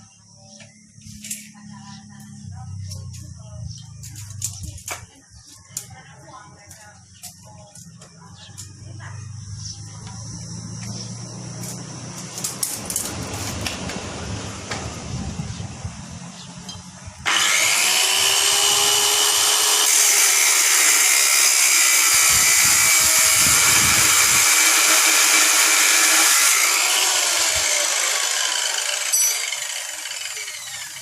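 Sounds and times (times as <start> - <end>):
angle grinder running: 17.3 - 31.0.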